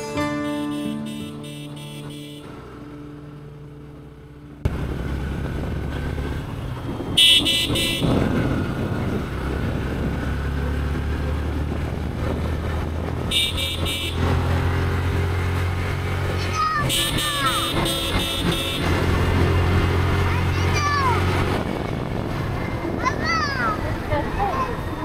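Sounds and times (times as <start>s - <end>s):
motorcycle engine and road noise: 0.0s - 25.0s
vehicle horn beeps: 0.1s - 2.8s, 7.1s - 8.4s, 13.3s - 14.4s, 16.8s - 19.7s.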